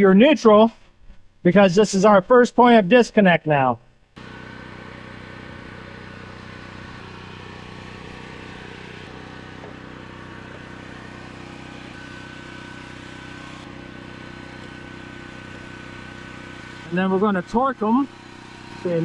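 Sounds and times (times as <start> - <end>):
thin steady whine: 4.0 - 19.0
engine drone: 4.2 - 19.0.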